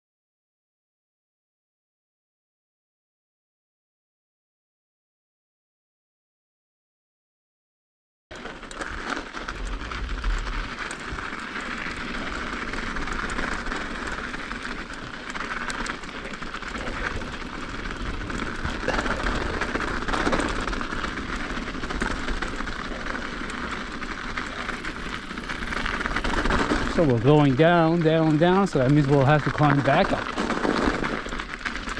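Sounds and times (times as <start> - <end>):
bike clicks and rattles: 8.3 - 31.9
bike tyres rolling on ice: 8.3 - 31.9.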